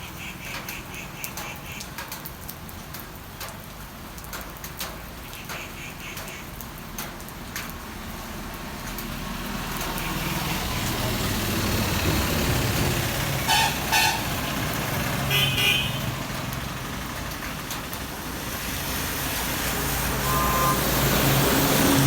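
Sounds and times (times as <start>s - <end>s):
raindrops tapping a surface: 0.0s - 20.2s
rain falling: 0.0s - 22.0s.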